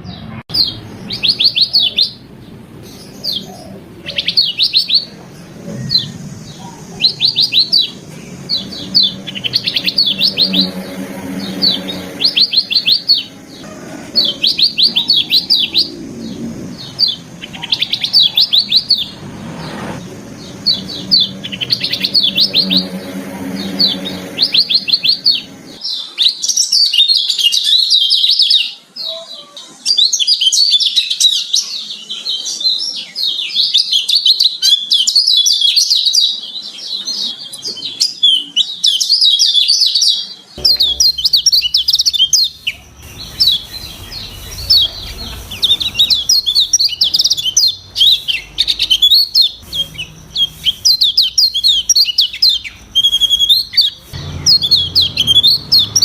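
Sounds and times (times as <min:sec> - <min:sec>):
bird twittering song: 0:00.0 - 0:28.7, 0:29.9 - 0:56.0
low background rumble: 0:00.6 - 0:25.8, 0:40.6 - 0:56.0.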